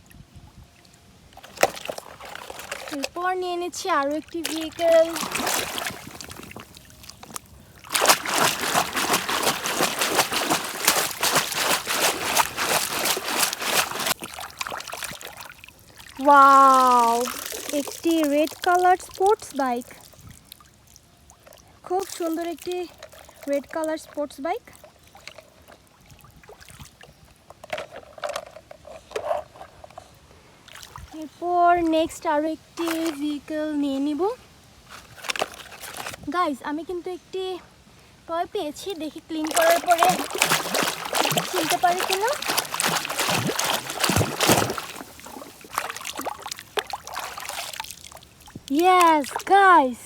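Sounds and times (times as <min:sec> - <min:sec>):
water splashing and trickling: 0:00.0 - 0:50.0.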